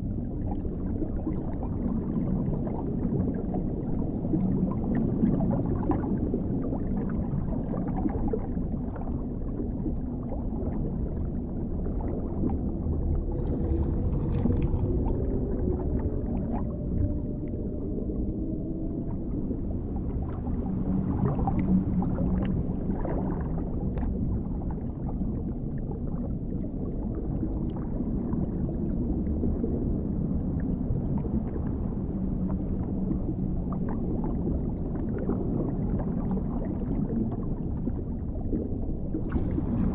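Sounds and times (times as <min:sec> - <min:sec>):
deep underwater rumble: 0:00.0 - 0:39.9
muffled gurgling: 0:00.0 - 0:39.9
faint tonal moans rising: 0:10.8 - 0:25.6.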